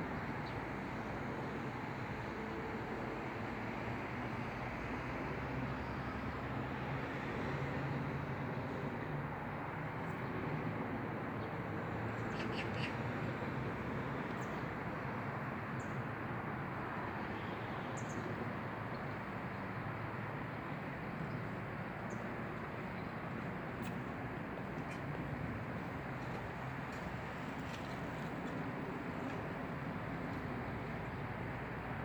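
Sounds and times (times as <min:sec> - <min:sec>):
outdoor background rush: 0:00.0 - 0:32.0.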